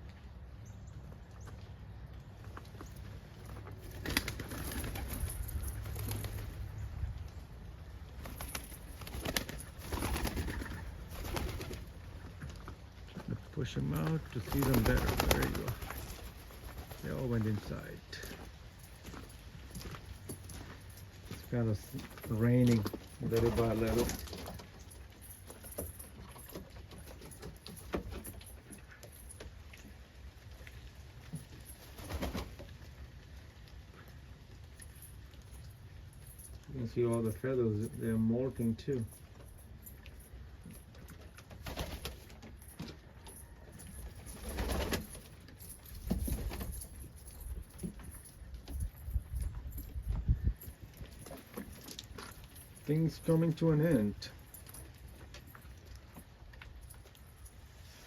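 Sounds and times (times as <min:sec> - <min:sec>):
pigeons flapping wings: 0:03.6 - 0:06.7, 0:08.2 - 0:12.2, 0:14.0 - 0:17.8, 0:22.0 - 0:24.7, 0:31.7 - 0:32.8, 0:41.5 - 0:45.4.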